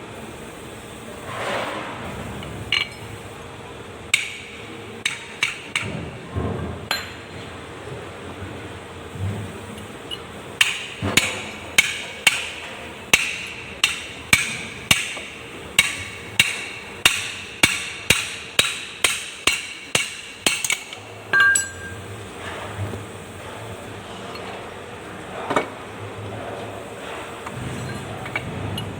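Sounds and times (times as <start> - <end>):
hammer striking metal: 4.1 - 5.9, 10.6 - 22.0.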